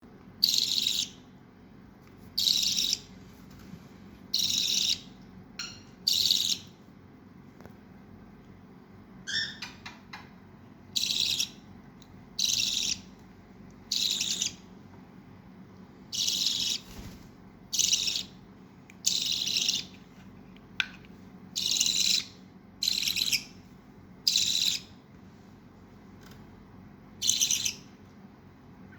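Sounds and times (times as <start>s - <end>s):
baby budgerigar hissy calls: 0.4s - 1.1s, 2.4s - 3.0s, 4.4s - 5.1s, 6.1s - 6.7s, 11.0s - 11.6s, 12.4s - 13.0s, 13.9s - 14.6s, 16.1s - 16.8s, 17.7s - 18.3s, 19.0s - 19.9s, 21.6s - 23.4s, 24.3s - 24.9s, 27.2s - 27.8s
high bird chirp: 0.4s - 1.3s, 2.4s - 3.1s, 4.3s - 6.7s, 9.3s - 9.9s, 10.9s - 11.7s, 12.4s - 13.1s, 13.9s - 14.6s, 16.1s - 16.9s, 17.7s - 18.4s, 19.0s - 19.9s, 21.6s - 23.6s, 24.2s - 24.9s, 27.2s - 27.9s.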